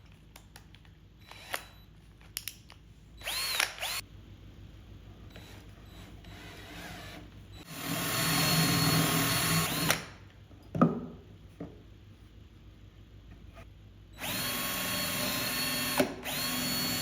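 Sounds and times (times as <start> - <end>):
power drill running: 3.2 - 4.0, 5.3 - 10.0, 14.2 - 17.0.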